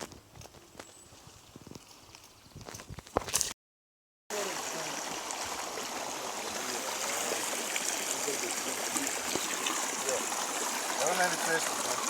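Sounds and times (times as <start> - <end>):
river flowing: 4.3 - 12.0.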